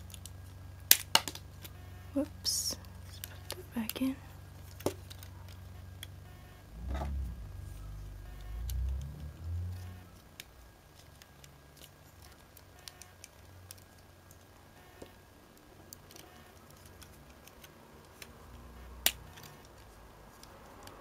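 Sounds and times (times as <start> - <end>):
plastic snap: 0.9 - 1.7
plastic parts clicking: 9.8 - 21.0.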